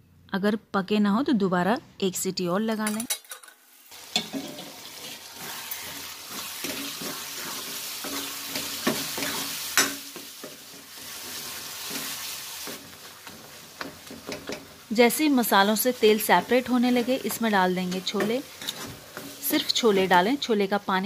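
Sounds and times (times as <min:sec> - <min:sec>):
masala sizzling in oil: 0:03.4 - 0:21.0
steel ladle scraping pan: 0:04.1 - 0:14.7, 0:17.2 - 0:20.1.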